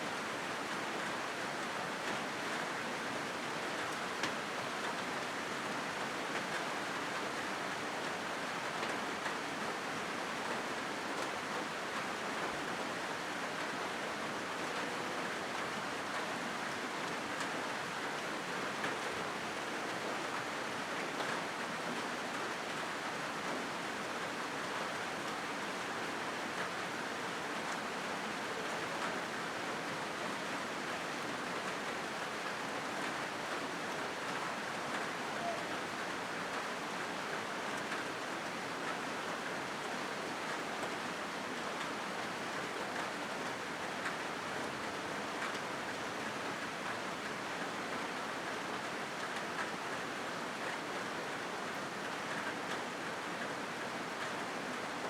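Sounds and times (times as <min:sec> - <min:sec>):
rain on a metal roof: 0:00.0 - 0:55.0.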